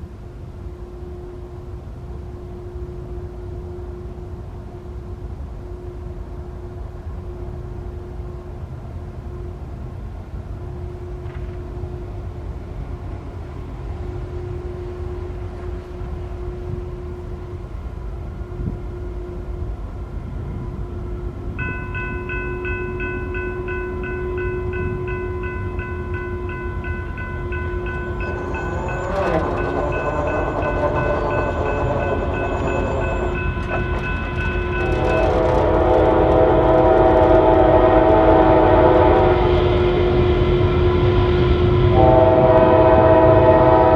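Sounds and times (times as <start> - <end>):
train horn: 14.1 - 43.9
crossing bell ringing: 21.6 - 38.6
locomotive engine rumble: 26.8 - 40.3.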